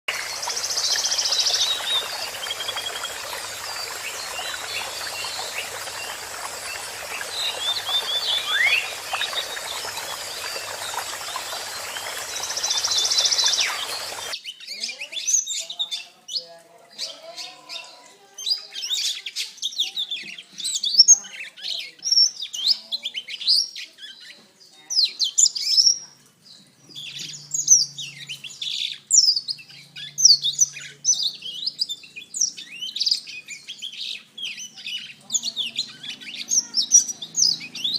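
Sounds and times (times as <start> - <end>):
steady hiss: 0.1 - 14.4
bird twittering song: 0.1 - 37.9.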